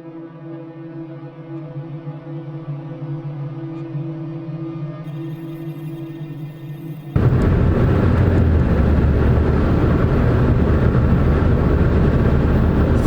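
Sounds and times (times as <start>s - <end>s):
moving vehicle rumble: 7.2s - 13.0s
road and wind noise: 7.2s - 13.0s.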